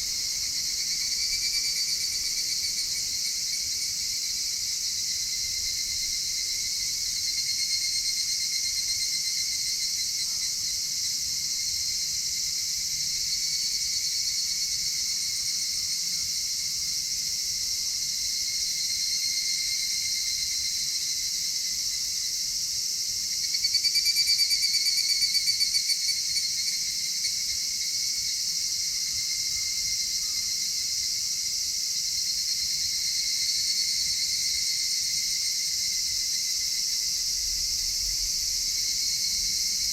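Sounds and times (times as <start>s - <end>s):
chorus of chirring insects: 0.0s - 39.9s
insect pulsing trill: 23.5s - 27.6s.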